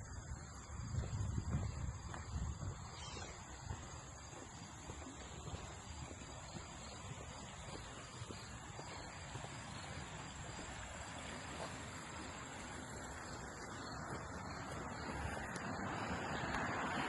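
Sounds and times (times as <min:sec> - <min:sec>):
insect trilling: 0:02.9 - 0:03.4.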